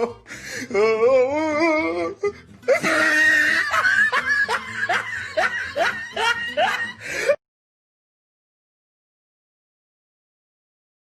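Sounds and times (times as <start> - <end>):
person laughing: 2.1 - 7.4.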